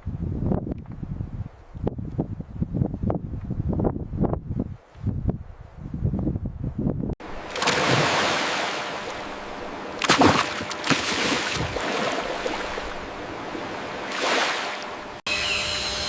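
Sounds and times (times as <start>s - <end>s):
water rushing and splashing: 7.2s - 15.2s.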